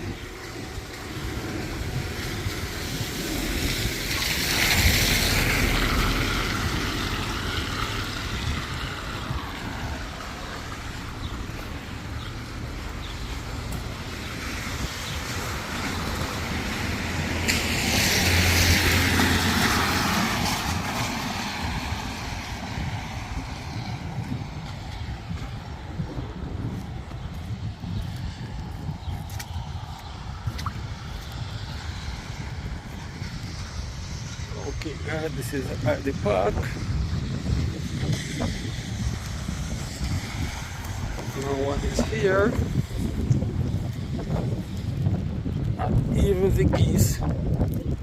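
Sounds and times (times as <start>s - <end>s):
outdoor rumble: 0.0s - 48.0s
tyre hiss on wet road: 0.4s - 23.1s.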